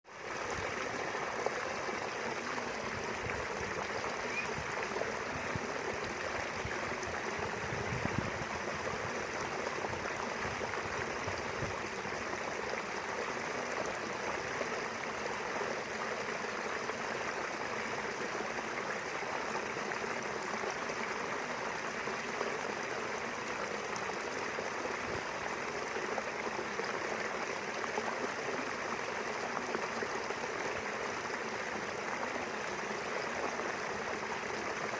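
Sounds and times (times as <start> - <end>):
river water rushing and gurgling: 0.1 - 34.9.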